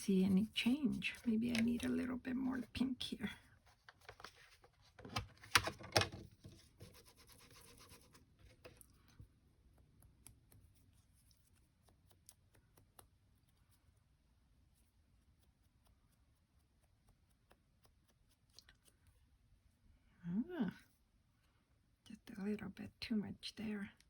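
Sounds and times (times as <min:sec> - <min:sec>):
scratchy rubbing on paper: 0:00.0 - 0:04.9, 0:06.4 - 0:08.8.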